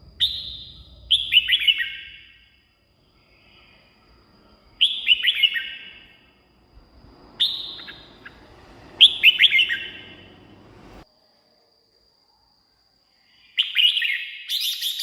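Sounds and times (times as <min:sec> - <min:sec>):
bulbul whistled song: 0:00.2 - 0:02.6, 0:04.8 - 0:06.3, 0:07.1 - 0:10.7, 0:13.5 - 0:15.0.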